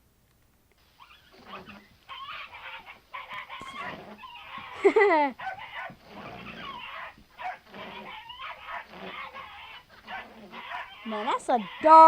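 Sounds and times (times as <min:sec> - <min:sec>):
dog yelping: 0:01.0 - 0:12.0.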